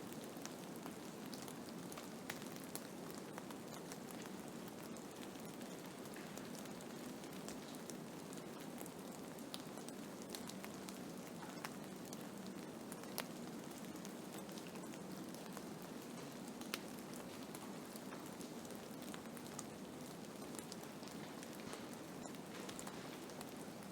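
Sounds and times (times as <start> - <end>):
snowstorm hiss with small ticks: 0.0 - 23.9.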